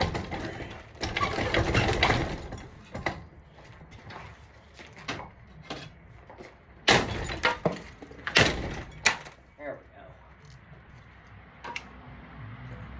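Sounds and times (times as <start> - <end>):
objects knocking and clattering: 0.0 - 3.3, 3.9 - 9.4.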